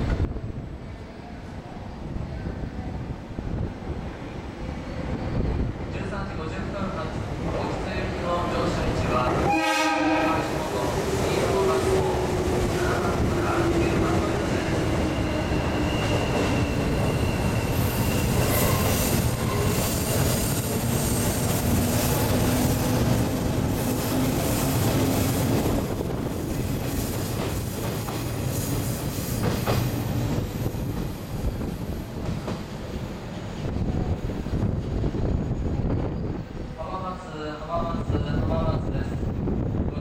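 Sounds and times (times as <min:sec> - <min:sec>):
train wheels clacking: 0:11.4 - 0:32.8.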